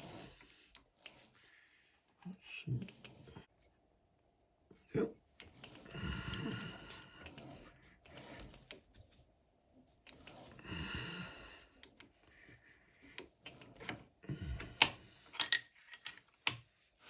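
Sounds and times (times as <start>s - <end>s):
metal parts and tools clicking: 15.3s - 16.6s.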